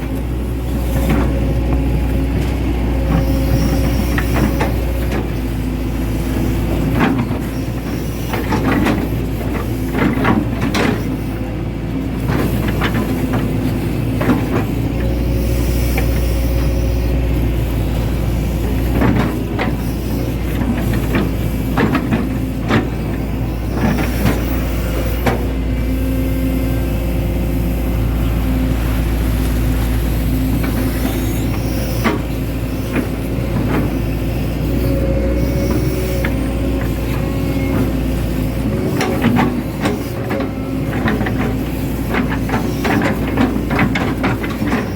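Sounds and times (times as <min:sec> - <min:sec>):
excavator diesel engine running: 0:00.0 - 0:44.9
machine knocks and clanks: 0:06.3 - 0:11.4, 0:12.2 - 0:15.2, 0:18.6 - 0:25.8, 0:35.2 - 0:44.9.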